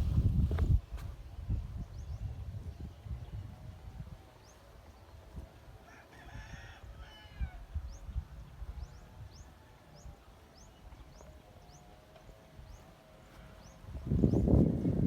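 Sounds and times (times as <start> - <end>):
rooster crowing: 5.8 - 7.6.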